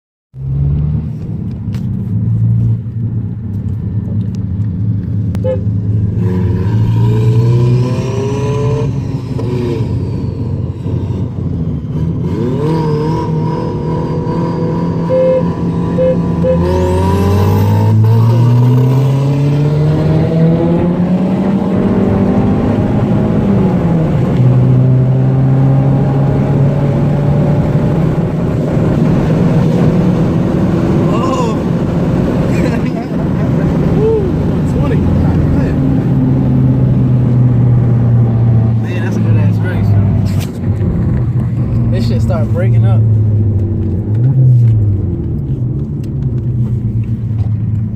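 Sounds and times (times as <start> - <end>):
car engine accelerating: 0.4 - 47.9.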